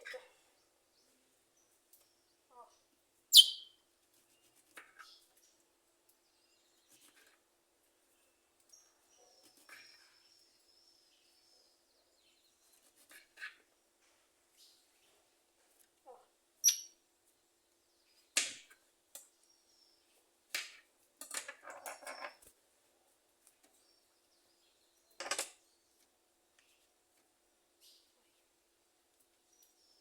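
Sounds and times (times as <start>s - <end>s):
bird chirps: 3.3s - 3.8s, 16.6s - 17.0s.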